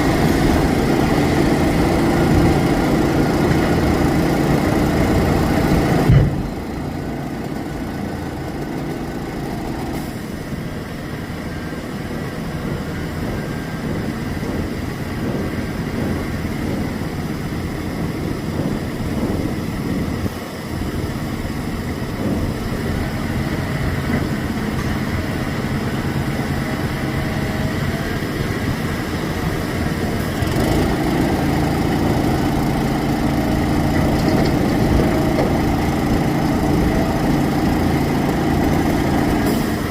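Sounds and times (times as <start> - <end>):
diesel truck engines running: 0.0 - 39.9
short thump: 6.1 - 6.6.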